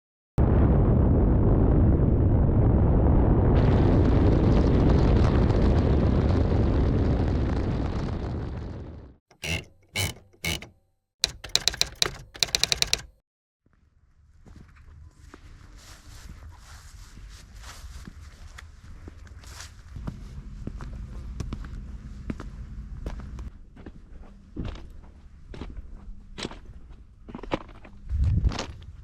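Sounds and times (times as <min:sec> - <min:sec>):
rattle of clicks: 0:09.3 - 0:13.2.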